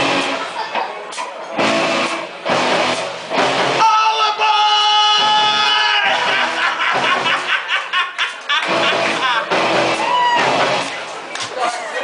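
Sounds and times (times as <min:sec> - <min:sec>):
rock band playing loudly: 0:00.0 - 0:11.3.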